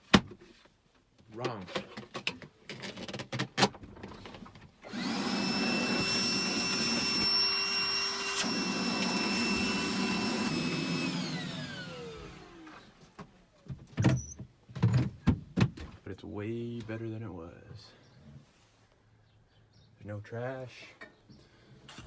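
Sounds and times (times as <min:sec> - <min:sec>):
vacuum cleaner whining: 0:04.8 - 0:13.2
motor winding down: 0:04.9 - 0:12.8.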